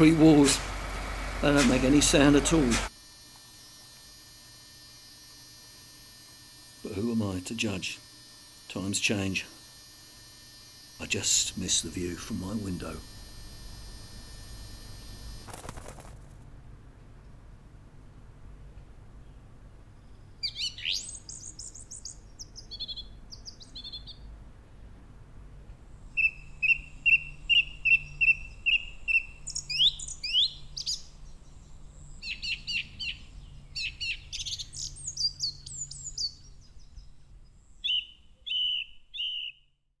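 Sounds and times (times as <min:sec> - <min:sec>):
robin singing: 0:37.8 - 0:39.6.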